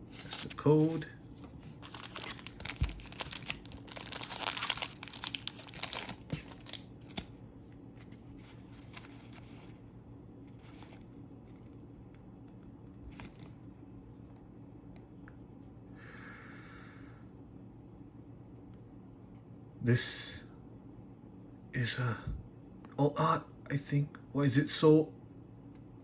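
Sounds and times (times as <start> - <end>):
foil wrapper crinkling and tearing: 1.7 - 7.3.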